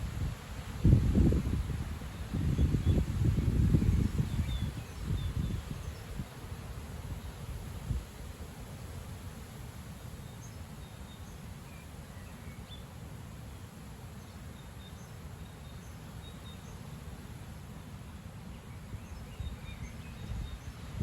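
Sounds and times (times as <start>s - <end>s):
gusty wind through trees: 0.0s - 21.0s.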